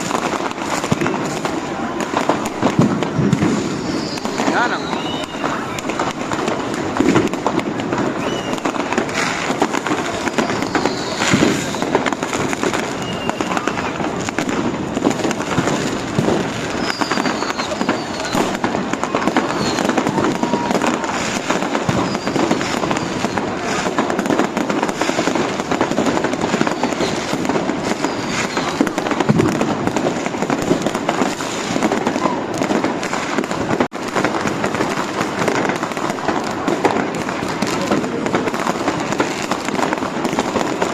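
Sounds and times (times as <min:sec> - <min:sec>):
firecrackers crackling and banging: 0:00.0 - 0:40.9
rocket whistles falling: 0:08.1 - 0:09.0, 0:10.2 - 0:12.1, 0:16.7 - 0:18.5, 0:21.8 - 0:23.3.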